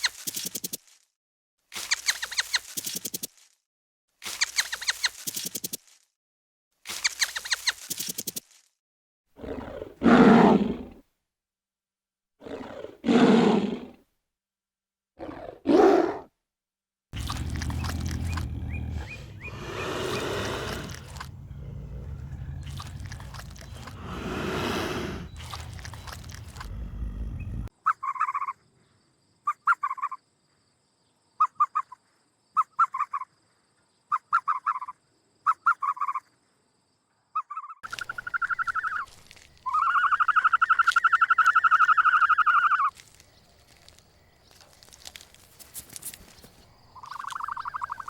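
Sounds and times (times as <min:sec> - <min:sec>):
long even animal call: 0:17.2 - 0:27.7
low rumble: 0:25.4 - 0:27.7.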